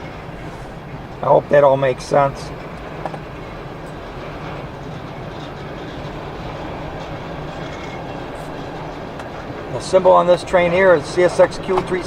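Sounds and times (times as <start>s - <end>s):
freight train wheels on rails: 0.0s - 12.0s.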